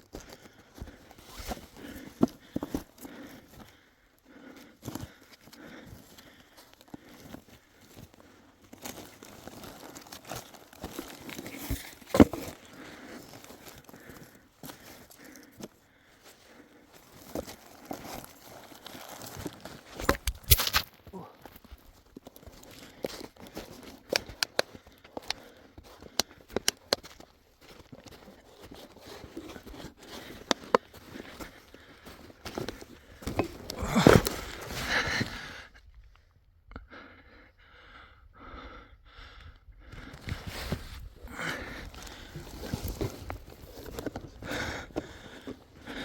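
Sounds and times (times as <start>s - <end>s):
crinkling and crunching: 4.8s - 35.4s, 40.1s - 46.0s
sharp irregular clicks and knocks: 24.1s - 25.4s.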